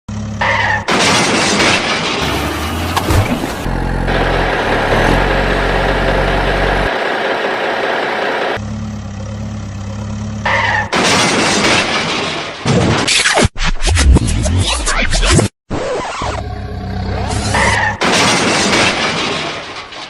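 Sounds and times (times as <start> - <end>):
truck engine idling: 2.2 - 10.8.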